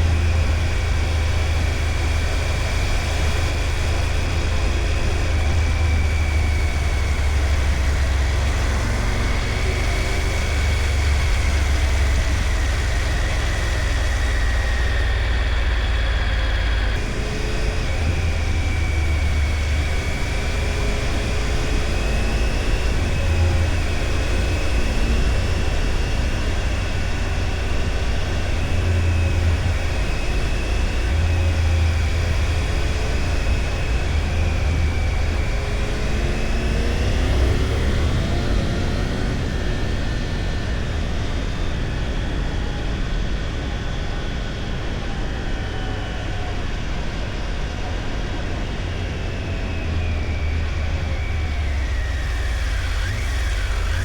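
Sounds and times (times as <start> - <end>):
motorcycle engine accelerating: 0.0 - 43.6.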